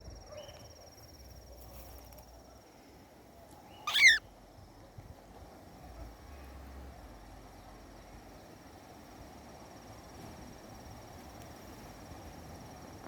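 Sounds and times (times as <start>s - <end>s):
soft background noise: 0.0s - 13.0s
cockatiel warbling call: 3.8s - 4.2s.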